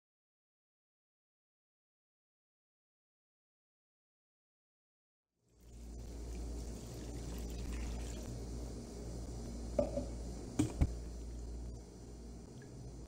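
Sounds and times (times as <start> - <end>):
water pouring into pan: 5.8 - 8.3.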